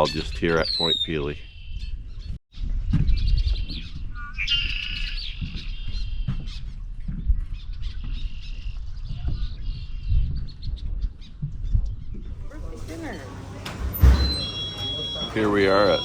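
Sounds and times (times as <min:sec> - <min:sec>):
marsh birds calling and singing: 0:00.0 - 0:12.0, 0:13.1 - 0:16.0
wind rumble on microphone: 0:01.4 - 0:12.9.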